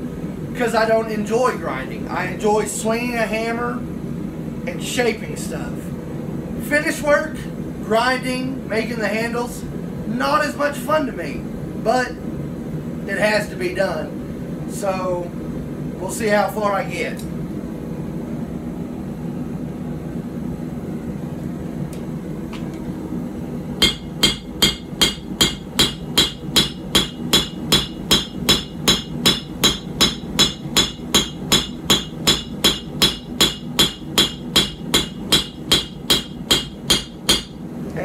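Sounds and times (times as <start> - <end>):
hammer striking blade on anvil: 23.8 - 37.6.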